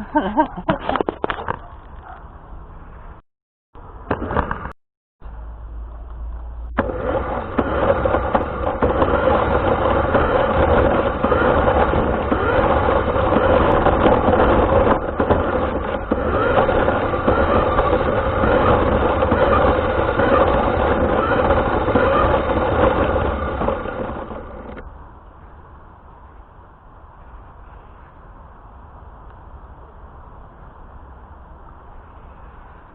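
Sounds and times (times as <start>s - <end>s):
rc car motor running: 6.8s - 24.9s.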